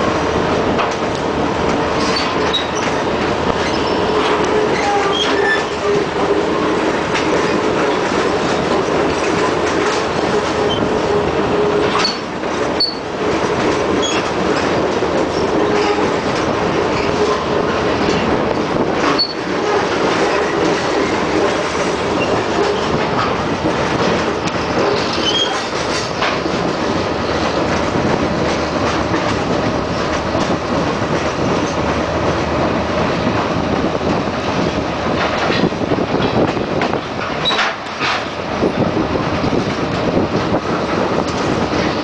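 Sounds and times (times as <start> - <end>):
train wheels rumbling on rails: 0.0 - 42.0
high wheel squeals: 3.6 - 6.0, 11.9 - 13.1, 14.0 - 14.3, 19.1 - 19.4, 25.0 - 25.7.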